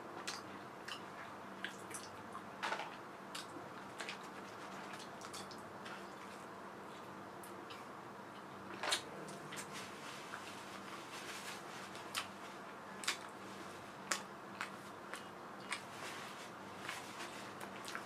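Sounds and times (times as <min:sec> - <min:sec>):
close-up chewing with mouth smacks: 0:14.1 - 0:15.9.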